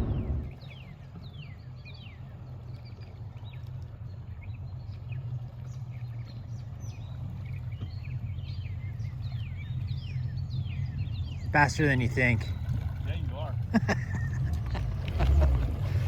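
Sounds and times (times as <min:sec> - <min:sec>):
steady low hum: 0:00.0 - 0:11.8
birds chirping: 0:00.0 - 0:16.0.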